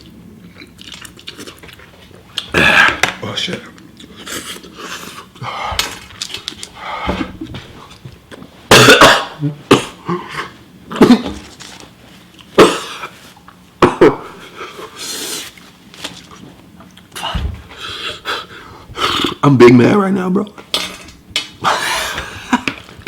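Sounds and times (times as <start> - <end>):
man coughing: 8.7 - 10.3, 12.6 - 13.1, 13.8 - 14.4.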